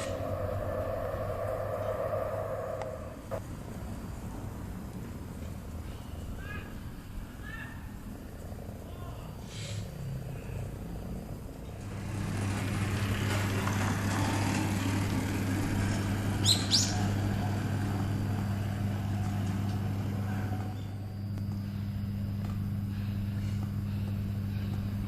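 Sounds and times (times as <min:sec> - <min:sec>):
vehicle passing by: 0:00.0 - 0:04.8, 0:09.8 - 0:20.7
steady low hum: 0:00.0 - 0:25.0
short rising bird chirps: 0:16.4 - 0:17.8.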